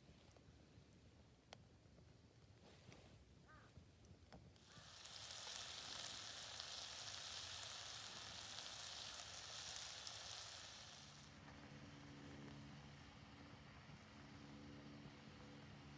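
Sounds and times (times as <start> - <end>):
food sizzling in a pan: 4.6 - 11.4.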